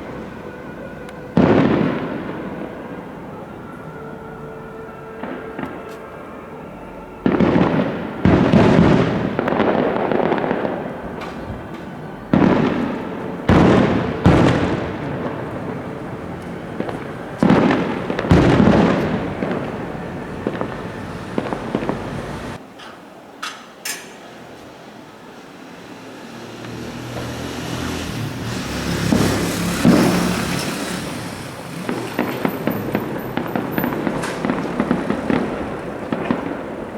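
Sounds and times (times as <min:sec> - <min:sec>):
fireworks booming: 0:00.0 - 0:22.6, 0:25.9 - 0:36.9
faint fireworks pops: 0:01.0 - 0:02.8, 0:05.1 - 0:06.3, 0:07.2 - 0:22.6, 0:29.0 - 0:36.9.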